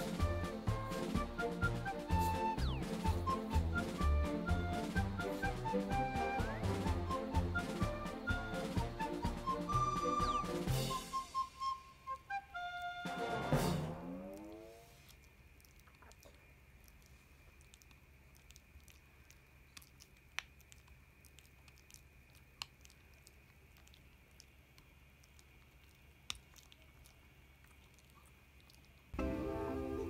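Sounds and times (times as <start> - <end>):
dog gnawing on a bone: 14.2 - 29.2.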